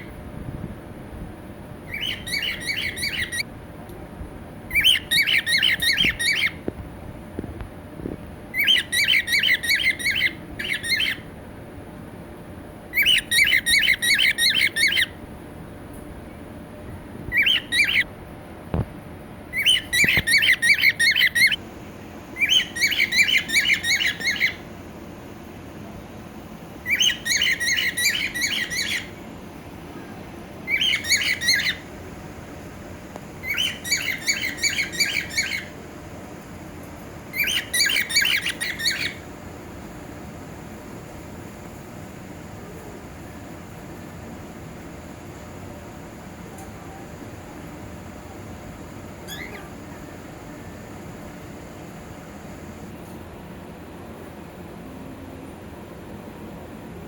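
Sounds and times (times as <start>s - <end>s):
cockatiel squawking: 1.9s - 3.4s, 4.7s - 6.6s, 8.6s - 11.2s, 13.0s - 15.2s, 19.6s - 21.6s, 22.4s - 24.6s, 26.9s - 29.1s, 30.7s - 31.8s, 33.4s - 35.7s, 37.4s - 39.2s, 49.2s - 49.7s.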